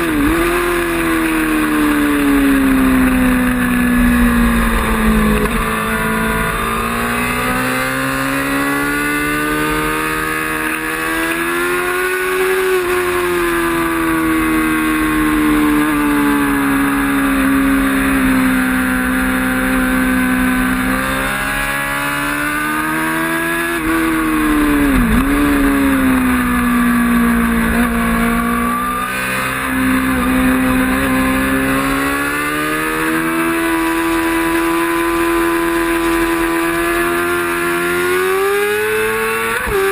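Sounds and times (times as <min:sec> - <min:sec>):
racing motorcycle engine revving: 0:00.0 - 0:39.9.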